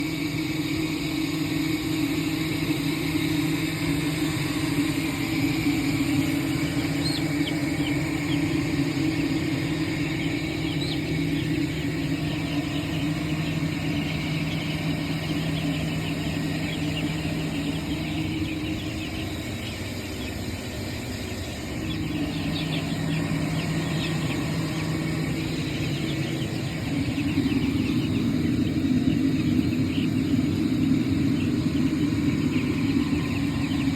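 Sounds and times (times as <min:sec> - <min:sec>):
chicks peeping: 0:00.0 - 0:33.9
low machine hum: 0:00.0 - 0:33.9.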